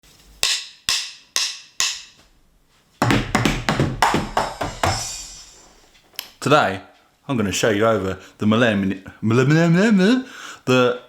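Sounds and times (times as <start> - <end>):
drum fill with kick and toms: 3.0 - 5.7.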